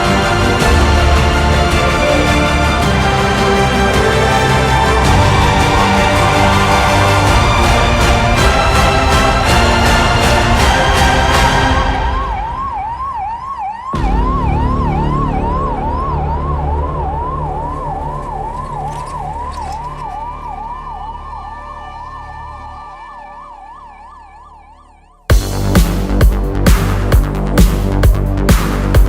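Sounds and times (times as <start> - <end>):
electronic dance music: 0.0 - 29.0
siren yelping: 11.3 - 25.3.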